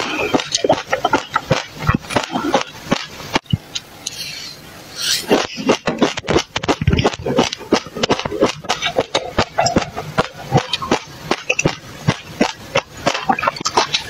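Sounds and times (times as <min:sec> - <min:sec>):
person swallowing water: 0:00.0 - 0:03.9, 0:05.1 - 0:14.0
seeds crunching while chewing: 0:05.1 - 0:14.0.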